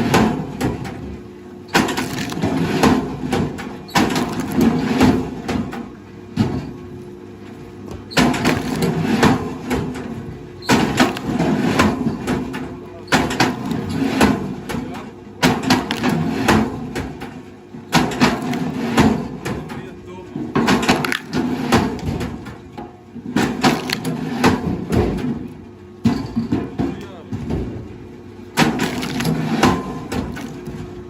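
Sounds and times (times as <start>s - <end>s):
wood cracking and splintering: 1.7s - 3.0s, 4.0s - 4.9s, 8.2s - 10.0s, 10.7s - 11.6s, 15.5s - 16.6s, 20.7s - 22.1s, 23.4s - 24.2s, 28.6s - 30.9s.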